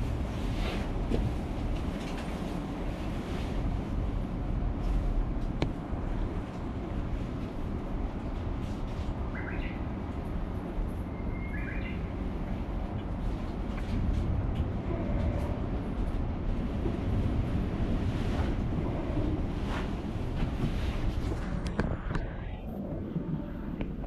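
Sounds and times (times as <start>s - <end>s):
standing train rumbling: 0.0s - 24.0s
bird chirps: 11.2s - 12.0s.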